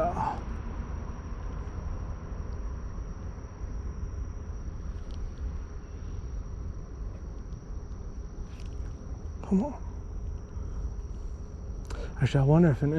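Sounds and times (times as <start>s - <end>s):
high-pitched insect drone: 0.0s - 12.9s
faint ticks: 4.9s - 5.5s, 7.1s - 9.0s.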